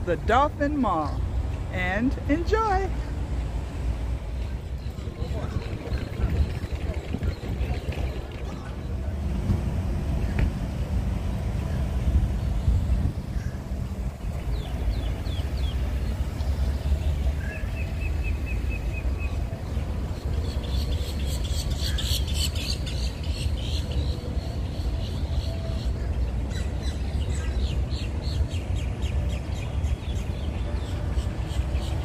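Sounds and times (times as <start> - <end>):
steady low rumble: 1.2 - 20.5.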